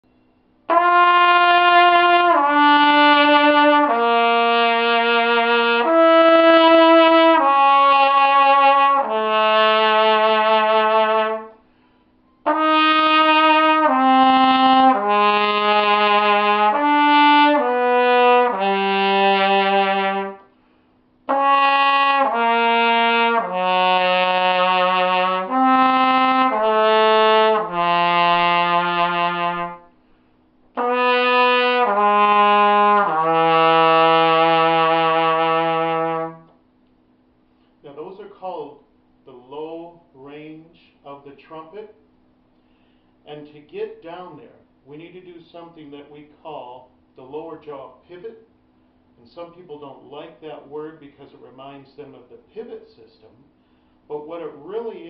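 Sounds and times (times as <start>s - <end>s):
trumpet playing held notes: 0.7s - 11.6s, 12.4s - 20.6s, 21.3s - 30.0s, 30.7s - 36.6s.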